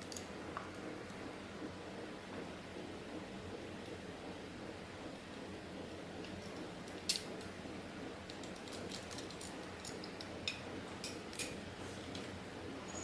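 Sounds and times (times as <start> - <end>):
steady low hum: 0.0 - 13.0
small tools clicking and clinking: 8.3 - 12.3.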